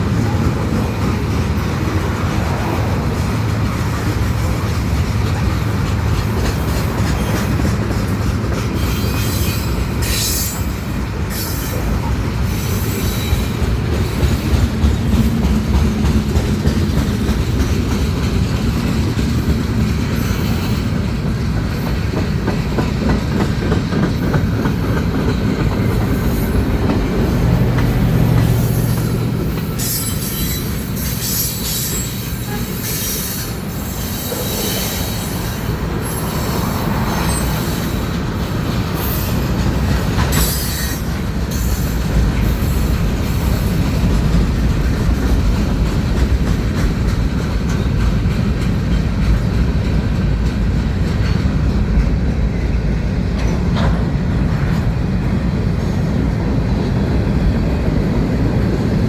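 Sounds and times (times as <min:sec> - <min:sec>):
train wheels rumbling and clattering: 0:00.0 - 0:59.0
metallic wheel squeal: 0:08.8 - 0:11.8, 0:28.5 - 0:38.1, 0:40.3 - 0:43.6.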